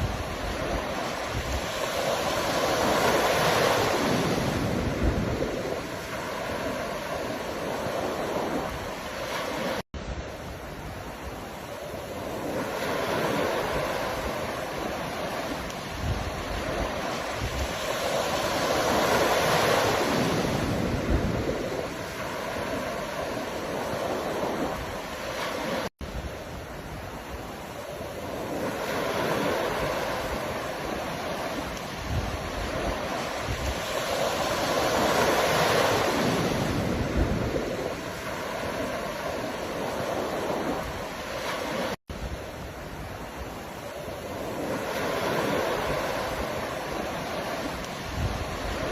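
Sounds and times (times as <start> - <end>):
ocean waves breaking: 0.0 - 48.9.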